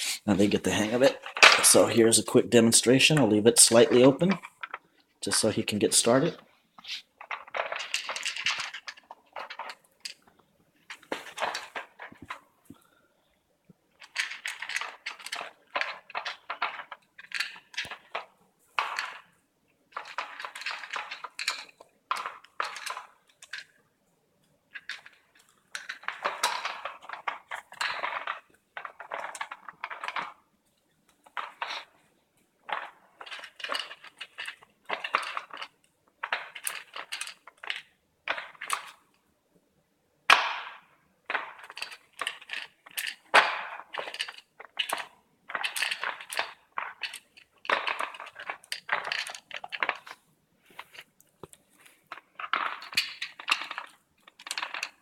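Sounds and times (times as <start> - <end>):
plastic toy clattering and clicking: 0.4 - 12.8, 13.9 - 23.8, 24.7 - 39.2, 40.3 - 55.0
dry kibble rattling and crunching: 6.8 - 12.4, 14.0 - 19.3, 19.9 - 23.8, 24.7 - 30.4, 32.6 - 39.0, 41.3 - 55.0.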